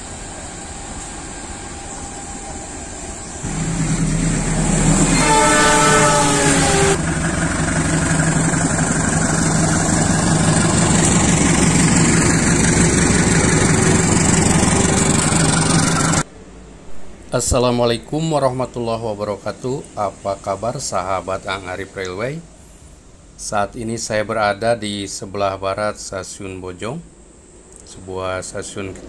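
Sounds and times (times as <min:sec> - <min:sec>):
locomotive passing: 0:00.0 - 0:22.0
train horn: 0:03.5 - 0:07.1.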